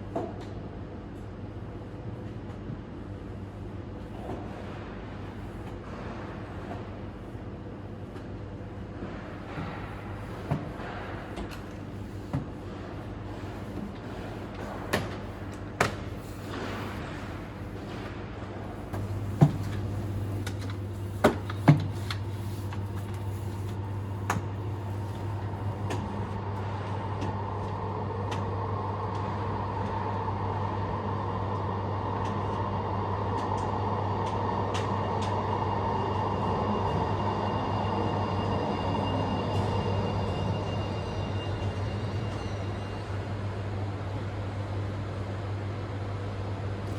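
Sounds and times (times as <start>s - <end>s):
tram running noise: 2.6s - 45.3s
tram hum: 9.7s - 43.7s.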